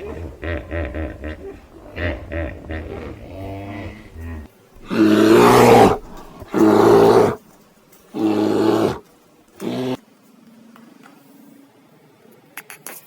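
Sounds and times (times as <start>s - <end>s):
big cat roaring: 0.0s - 7.4s, 8.1s - 10.0s
faint clicks: 0.0s - 10.0s.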